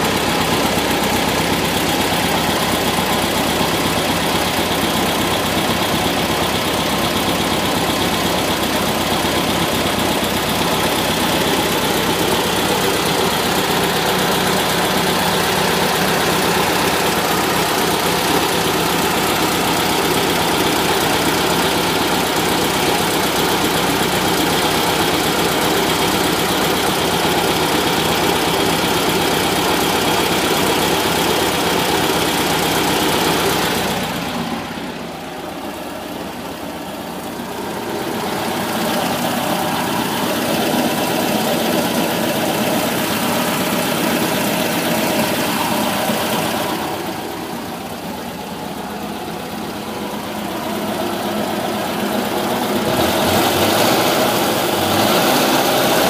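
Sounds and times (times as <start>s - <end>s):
engine idling with knock: 0.0s - 56.0s.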